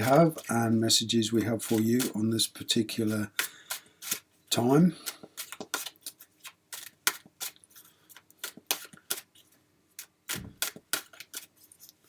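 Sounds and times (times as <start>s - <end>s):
cards being shuffled: 5.0s - 9.5s, 10.3s - 12.0s.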